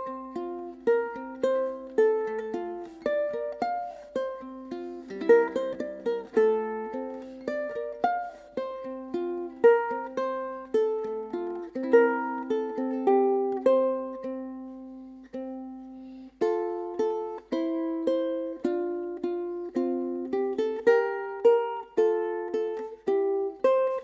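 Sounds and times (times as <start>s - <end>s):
ukulele played fingerstyle: 0.0s - 24.0s.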